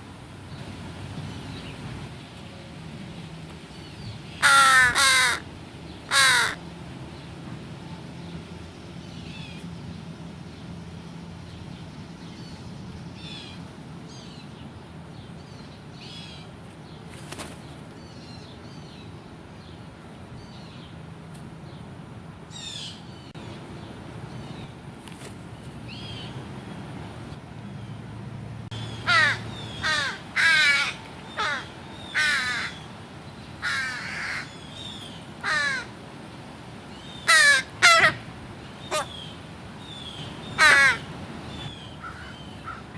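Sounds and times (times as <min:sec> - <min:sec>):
crows cawing: 0:04.4 - 0:05.5, 0:06.1 - 0:06.6, 0:28.9 - 0:32.9, 0:33.6 - 0:34.5, 0:35.4 - 0:35.9, 0:37.2 - 0:38.3, 0:40.6 - 0:41.1, 0:42.0 - 0:42.9.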